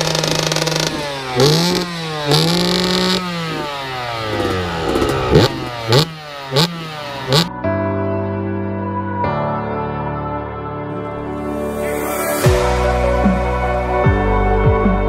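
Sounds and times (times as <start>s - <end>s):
two-stroke moped engine revving: 0.0s - 7.5s.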